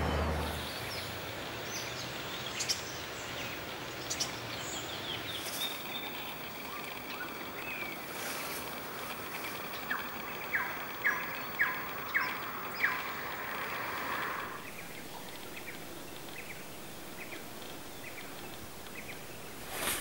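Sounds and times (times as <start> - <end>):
outdoor background hiss: 0.0 - 20.0
bird calling sharp notes: 5.4 - 14.8.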